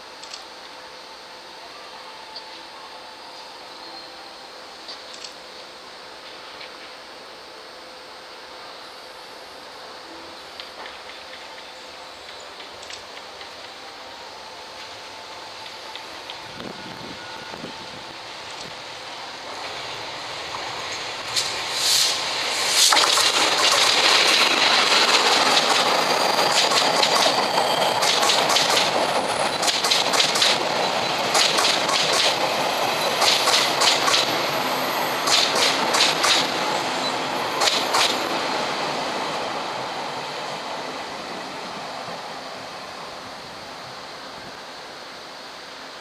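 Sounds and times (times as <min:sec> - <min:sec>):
train rumble: 0:09.8 - 0:46.0
wheels clicking over rail joints: 0:22.8 - 0:34.6, 0:35.2 - 0:36.6, 0:37.6 - 0:38.2.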